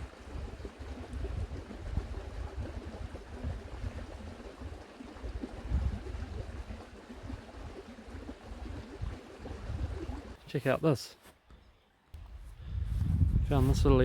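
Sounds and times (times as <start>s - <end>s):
wind buffeting microphone: 0.0s - 10.4s, 12.2s - 14.0s.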